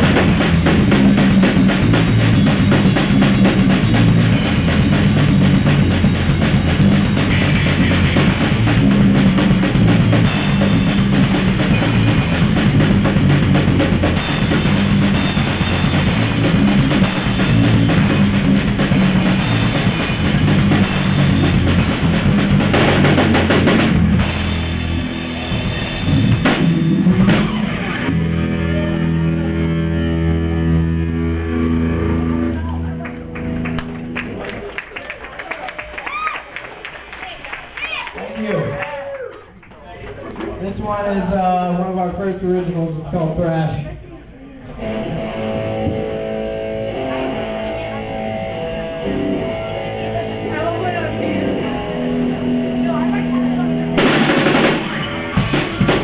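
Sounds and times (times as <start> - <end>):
drum and cymbal hits: 0.0 - 28.3, 53.9 - 56.0
distorted guitar chord ringing: 2.9 - 33.4, 44.8 - 56.0.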